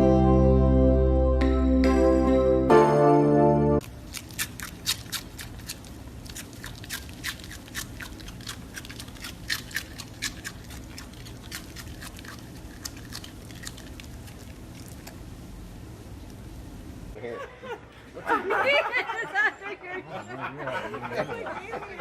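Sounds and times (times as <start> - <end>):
pet chewing crunchy food: 3.8 - 15.7.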